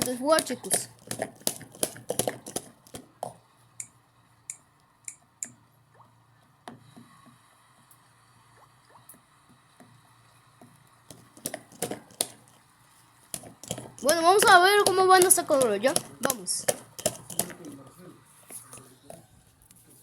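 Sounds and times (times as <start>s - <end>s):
washing machine: 0.0s - 17.8s
water dripping and gurgling: 3.3s - 12.6s
small sharp clicks: 3.8s - 5.6s.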